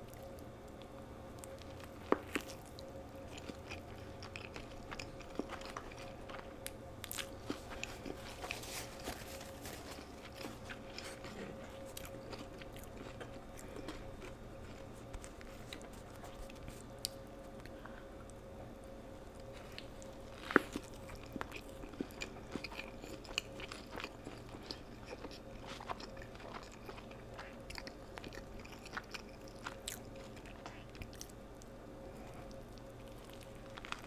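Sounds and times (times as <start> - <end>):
crunchy food chewing: 0.0 - 18.4, 19.2 - 34.0
faint steady hum: 0.0 - 34.0.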